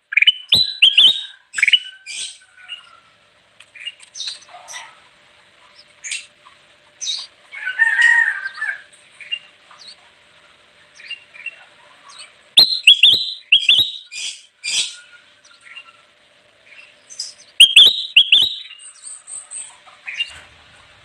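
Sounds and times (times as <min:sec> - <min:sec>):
bulbul calling: 0:00.1 - 0:03.0, 0:06.9 - 0:10.0, 0:10.9 - 0:16.0, 0:16.7 - 0:20.4.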